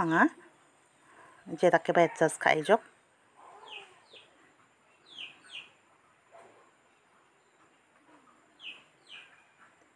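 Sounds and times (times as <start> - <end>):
faint bird chirps: 3.4 - 9.9.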